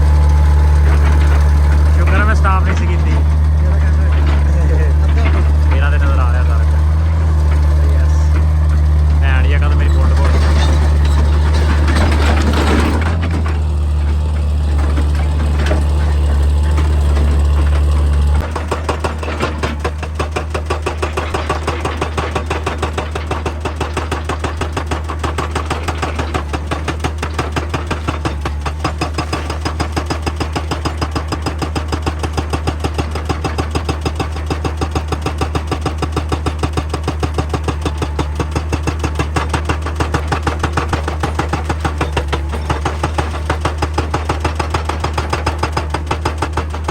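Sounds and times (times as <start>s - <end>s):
excavator engine humming: 0.0s - 46.9s
hydraulic rock breaker hammering: 0.0s - 46.9s.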